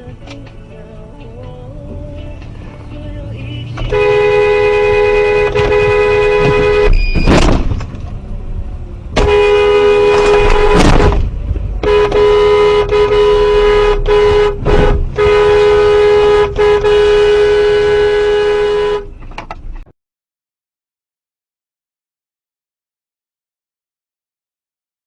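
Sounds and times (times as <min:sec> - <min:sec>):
vehicle horn blasts: 0:03.8 - 0:07.4, 0:09.2 - 0:11.2, 0:11.8 - 0:19.2.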